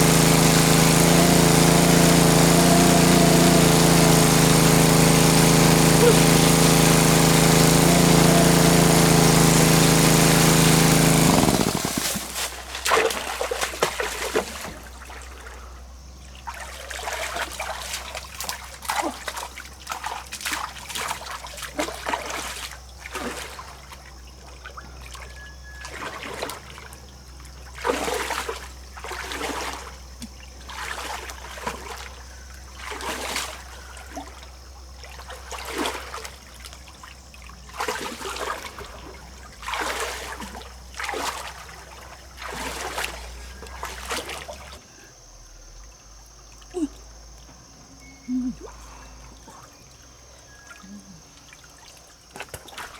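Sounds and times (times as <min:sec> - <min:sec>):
small engine running: 0:00.0 - 0:12.6
water splashing and sloshing: 0:09.2 - 0:47.7, 0:48.4 - 0:52.9.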